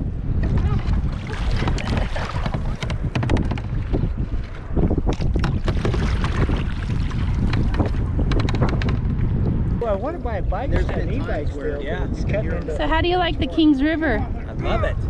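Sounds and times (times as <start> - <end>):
wind rumbling on microphone: 0.0 - 15.0
river water splashing: 0.4 - 8.2.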